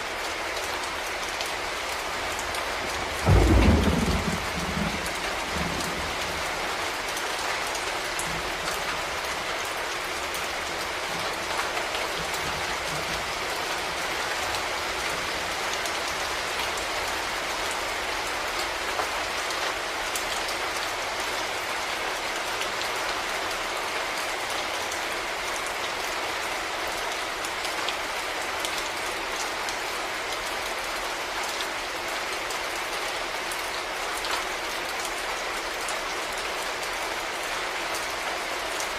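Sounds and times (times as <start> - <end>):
heavy rain: 0.0 - 38.9
thunder rumble: 3.1 - 6.5.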